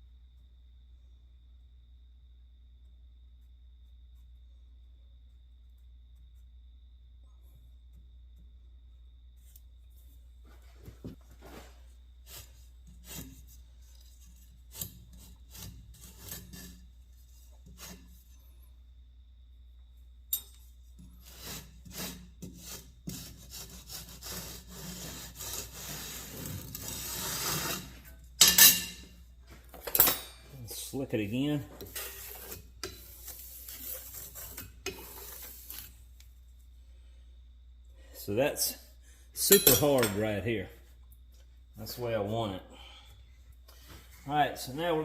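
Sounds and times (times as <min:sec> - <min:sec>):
sand being scraped: 0:11.4 - 0:18.2, 0:21.2 - 0:28.2, 0:30.7 - 0:36.1.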